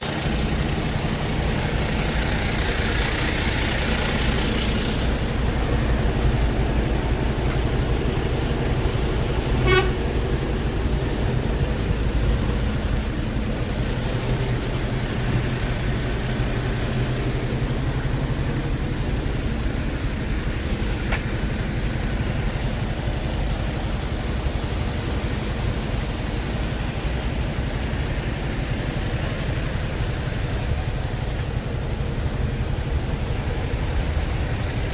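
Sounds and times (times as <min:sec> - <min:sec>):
diesel engine idling: 0:00.0 - 0:34.9
short sharp horn toot: 0:09.4 - 0:10.4.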